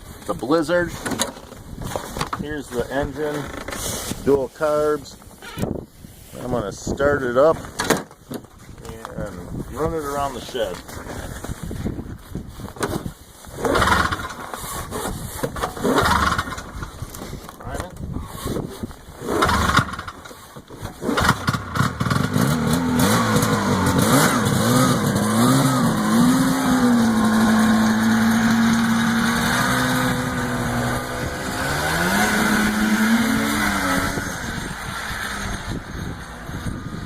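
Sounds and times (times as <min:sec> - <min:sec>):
snowmobile engine starting and idling: 0:00.1 - 0:05.2, 0:12.8 - 0:37.0.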